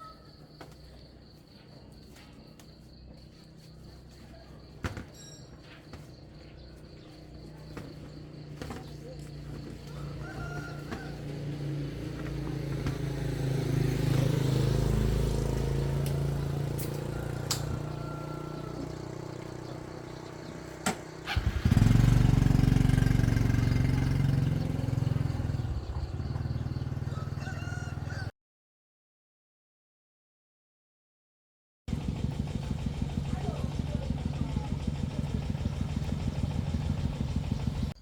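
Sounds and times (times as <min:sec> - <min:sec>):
small engine running: 0:04.0 - 0:28.3, 0:31.9 - 0:38.0.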